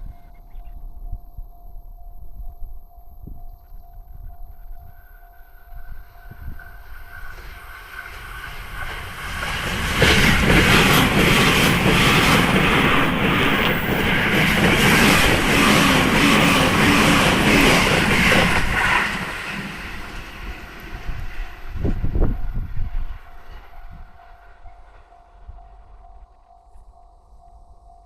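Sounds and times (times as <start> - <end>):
train wheels on rail: 6.2 - 26.2.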